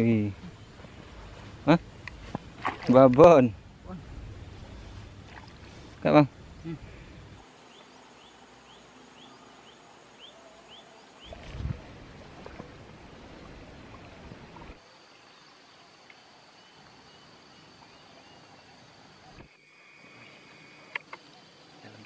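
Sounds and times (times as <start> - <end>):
bird chirping: 6.5 - 11.5.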